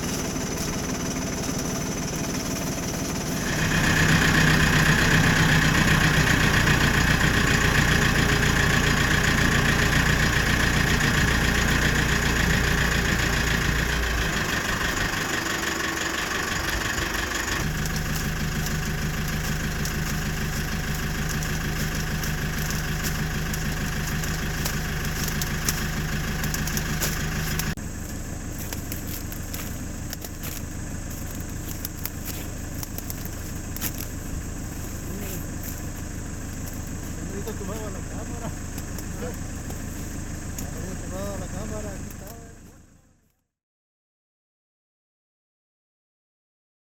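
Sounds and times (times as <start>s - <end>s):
farm machinery engines running: 0.0s - 43.3s.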